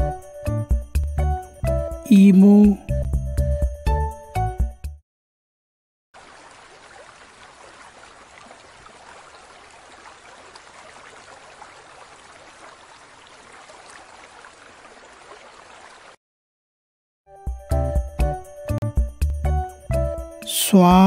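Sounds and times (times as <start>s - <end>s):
water trickling: 6.2s - 16.2s.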